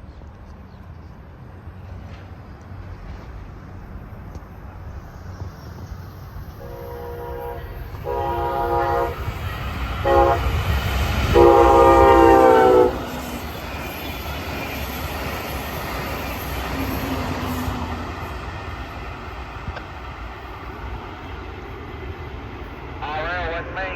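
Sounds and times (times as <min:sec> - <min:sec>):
train low rumble: 0:00.0 - 0:23.9
locomotive air horn blasts: 0:06.6 - 0:09.4, 0:10.0 - 0:10.7, 0:11.3 - 0:13.2.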